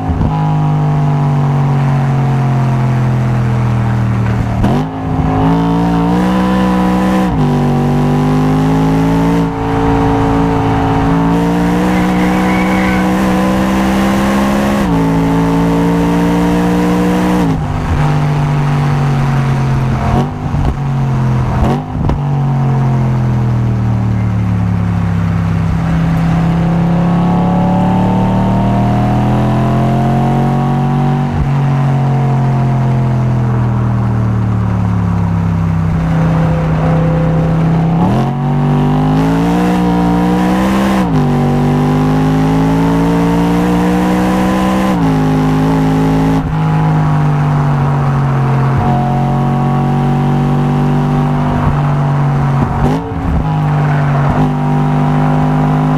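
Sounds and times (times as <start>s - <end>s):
car engine accelerating hard: 0.0s - 55.9s.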